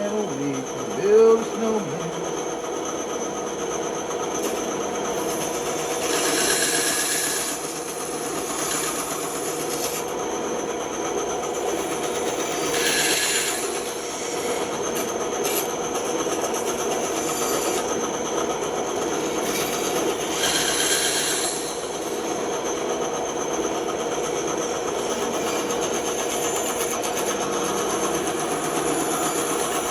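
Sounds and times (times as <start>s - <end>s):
bandsaw cutting wood: 6.0s - 10.1s, 12.5s - 14.7s, 16.7s - 18.0s, 19.3s - 21.8s.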